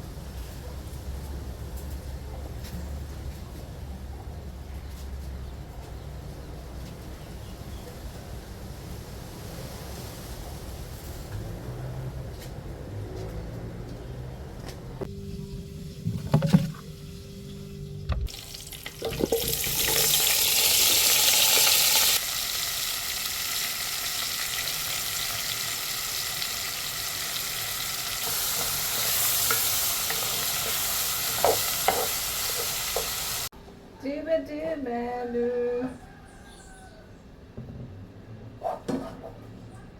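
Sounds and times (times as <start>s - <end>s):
food sizzling in hot oil: 18.3s - 33.5s
utensils knocking: 28.6s - 33.4s.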